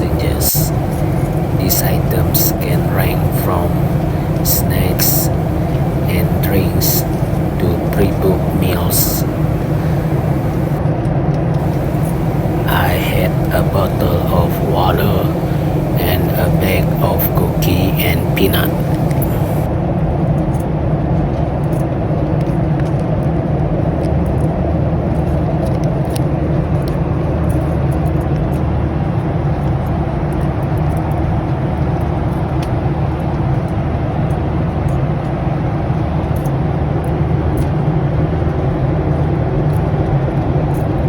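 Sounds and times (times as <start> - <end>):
airliner cabin engine drone: 0.0 - 10.8, 11.6 - 19.7.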